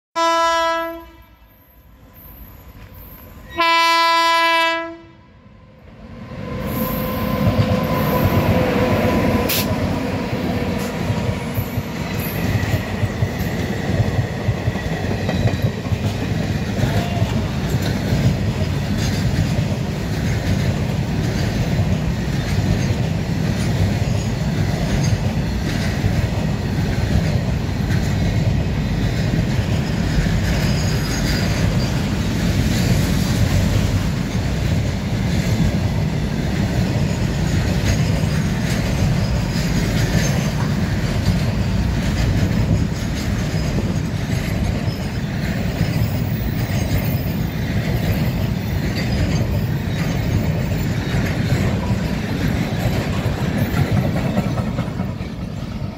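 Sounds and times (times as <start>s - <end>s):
locomotive air horn blasts: 0.2s - 1.6s, 3.5s - 5.3s
train wagons rumbling: 6.0s - 55.9s
wheels clacking over rail joints: 7.4s - 55.9s.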